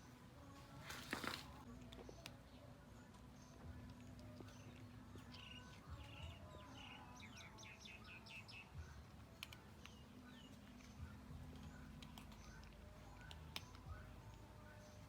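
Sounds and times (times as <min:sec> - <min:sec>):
bird chirps: 0:03.3 - 0:09.1.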